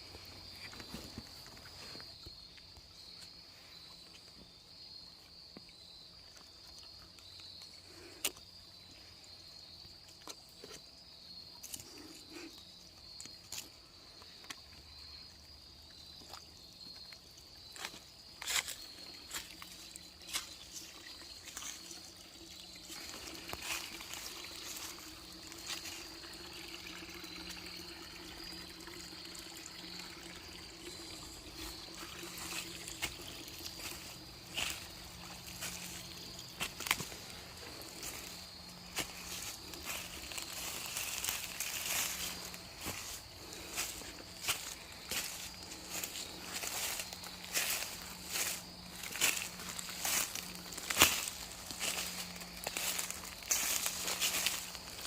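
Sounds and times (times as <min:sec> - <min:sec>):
stream trickling: 0:00.0 - 0:55.0
high-pitched insect drone: 0:16.2 - 0:55.0.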